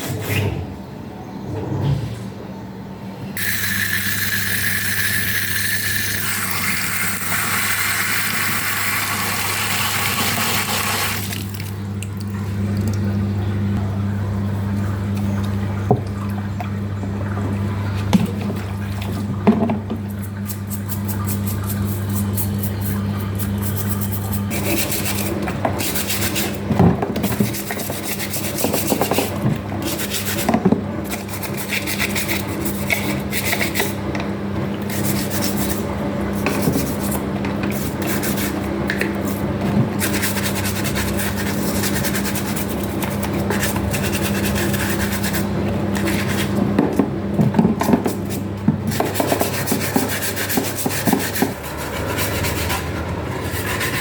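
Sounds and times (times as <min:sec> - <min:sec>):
rubbing and scraping strokes: 0:48.1 - 0:54.0.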